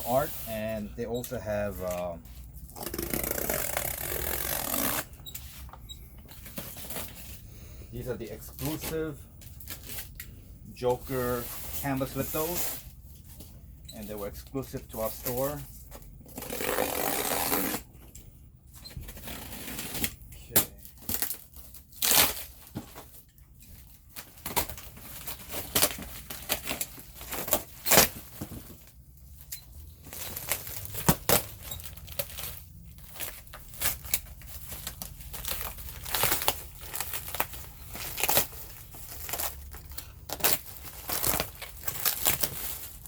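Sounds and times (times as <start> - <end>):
tape or paper tearing: 2.6 - 5.2, 16.3 - 17.9, 21.1 - 22.6
packing material crinkling: 20.8 - 43.0.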